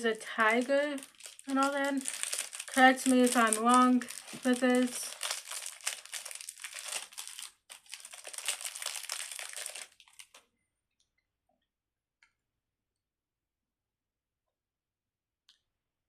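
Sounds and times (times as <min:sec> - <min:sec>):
wrapper crinkling: 0:00.0 - 0:10.5.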